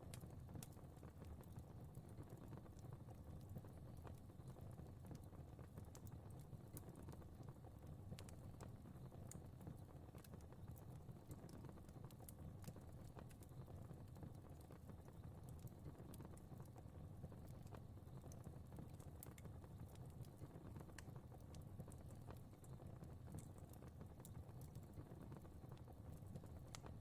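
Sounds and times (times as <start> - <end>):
soft rumble of flames: 0.0 - 27.0
fire pops and snaps: 17.4 - 27.0.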